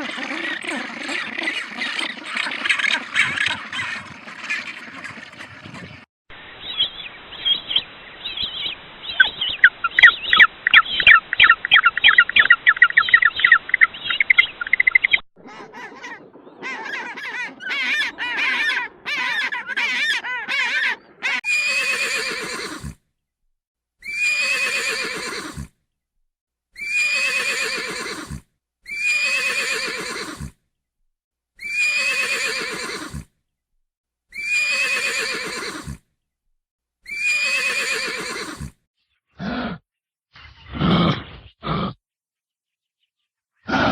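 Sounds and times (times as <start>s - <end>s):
squawking bird-like calls: 0.0s - 5.8s, 9.1s - 22.9s
chattering animal call: 0.0s - 6.0s, 9.1s - 22.9s
whinnying calls: 15.4s - 23.0s, 24.0s - 25.7s, 26.8s - 30.5s, 31.6s - 33.2s, 34.4s - 36.0s, 37.1s - 38.7s.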